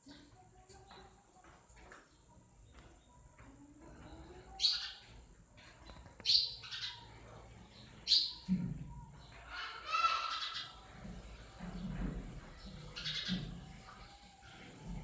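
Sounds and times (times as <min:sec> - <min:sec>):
sparrows chirping: 0:00.0 - 0:15.0.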